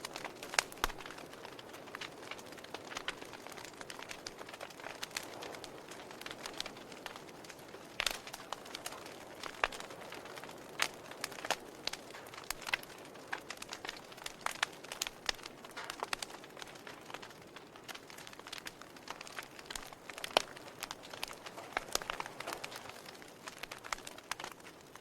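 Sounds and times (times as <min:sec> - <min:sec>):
wood fire crackling and popping: 0:00.0 - 0:25.0
burning logs hissing: 0:00.1 - 0:25.0.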